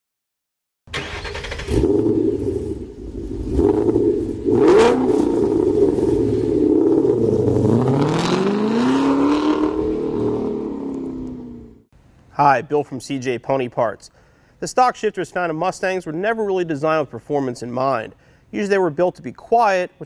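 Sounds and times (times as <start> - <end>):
car engine revving: 1.0 - 11.9.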